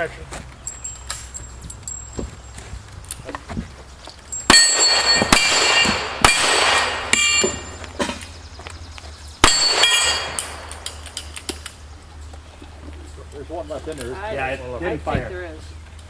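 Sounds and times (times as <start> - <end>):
steel target ringing: 0.7 - 2.5, 4.3 - 7.9, 9.4 - 11.2
gunshots: 4.5 - 7.6, 9.4 - 11.2.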